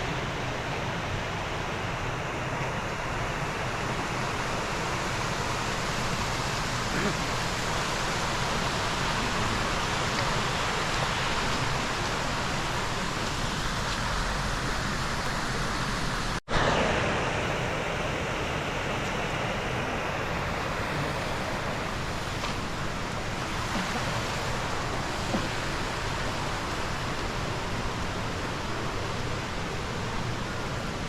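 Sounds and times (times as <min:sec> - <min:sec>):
stream flowing over rocks: 0:00.0 - 0:31.0.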